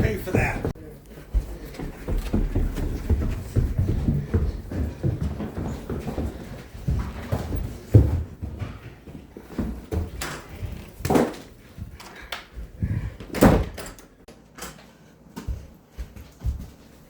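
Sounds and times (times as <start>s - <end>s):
door opening and shutting: 13.2s - 14.8s.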